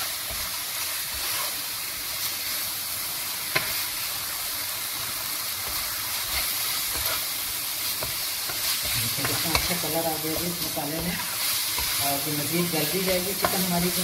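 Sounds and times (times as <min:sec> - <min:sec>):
chicken sizzling in a frying pan: 0:00.0 - 0:14.0
wooden spatula stirring: 0:05.6 - 0:14.0.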